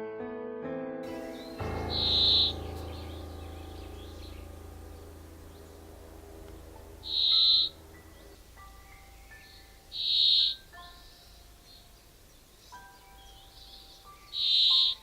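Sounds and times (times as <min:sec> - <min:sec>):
soft music chord: 0:01.0 - 0:15.0
bird calling high note: 0:01.2 - 0:04.4.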